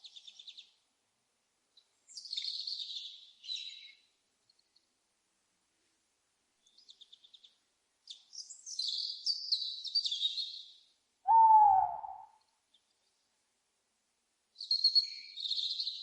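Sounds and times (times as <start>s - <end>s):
songbird chirping: 0.0s - 0.9s, 1.6s - 5.0s, 6.6s - 13.4s, 14.5s - 16.0s
owl hoot: 11.3s - 12.4s.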